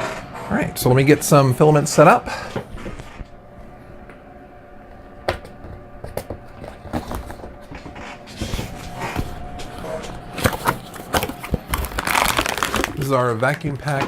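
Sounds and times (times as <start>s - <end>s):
box rustling: 6.1s - 14.0s.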